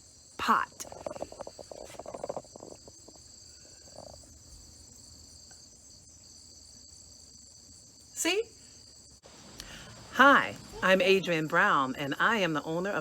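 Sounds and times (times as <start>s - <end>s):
insect chorus trilling: 0.0s - 13.0s
crackling and rustling: 0.7s - 5.0s.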